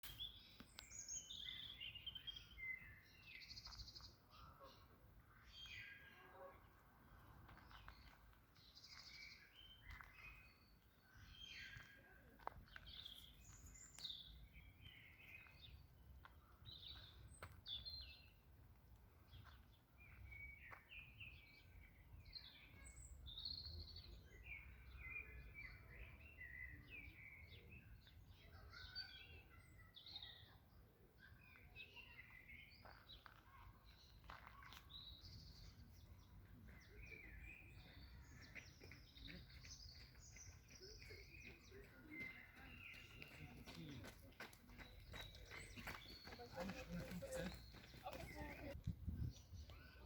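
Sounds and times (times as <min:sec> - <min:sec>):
birds chirping and twittering: 0:00.0 - 0:50.0.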